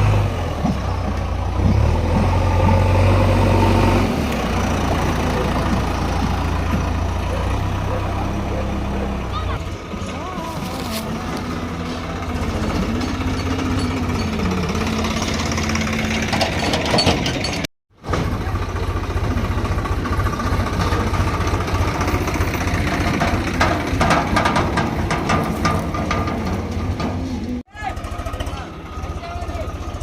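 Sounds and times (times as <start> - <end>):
diesel engine knocking: 0.1 - 3.5, 4.2 - 30.0
metal clanks: 10.6 - 18.4, 20.6 - 27.6.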